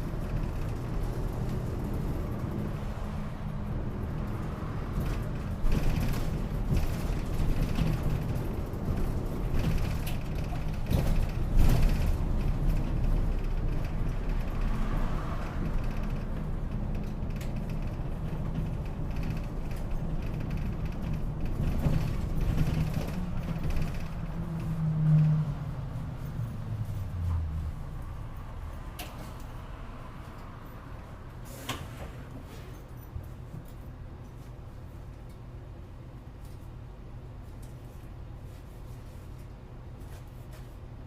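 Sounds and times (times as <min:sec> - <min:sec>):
bus engine rumble: 0:00.0 - 0:41.0
body panels rattling and creaking: 0:05.0 - 0:14.7, 0:15.6 - 0:24.8.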